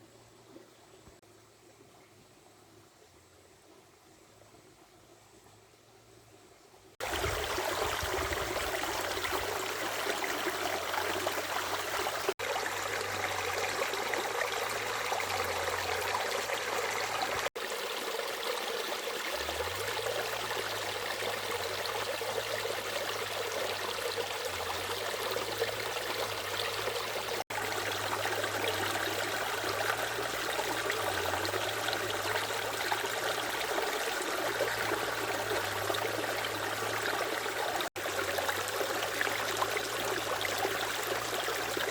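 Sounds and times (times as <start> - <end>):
water flowing in a stream: 0.0 - 41.9.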